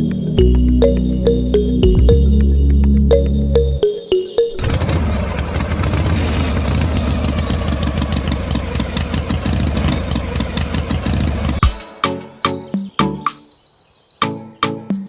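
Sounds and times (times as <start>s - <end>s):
engine running with fast pulse: 4.5s - 11.6s.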